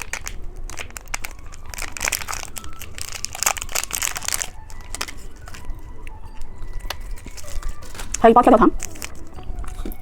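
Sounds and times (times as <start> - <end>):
plastic wrapper crinkling: 0.0 - 10.0.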